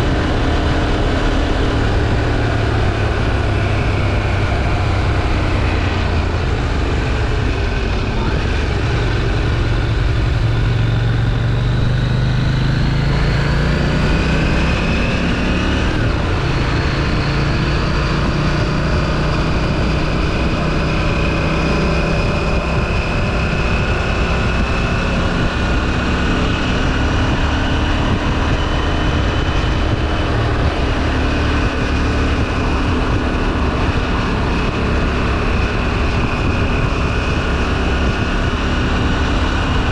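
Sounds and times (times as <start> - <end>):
motorcycle engine accelerating: 0.0 - 39.9
wind and road noise: 0.0 - 39.9.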